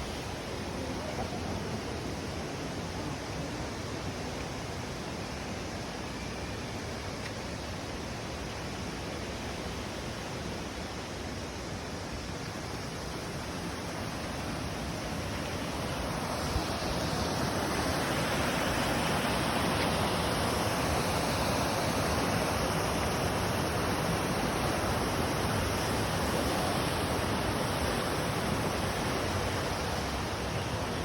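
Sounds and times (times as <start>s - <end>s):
waterfall rushing: 9.5s - 31.0s.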